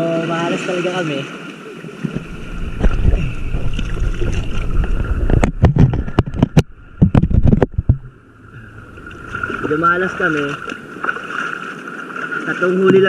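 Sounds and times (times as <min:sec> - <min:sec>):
boat engine drone with whine: 0:02.0 - 0:12.3
sharp knocks and thumps: 0:02.1 - 0:08.2.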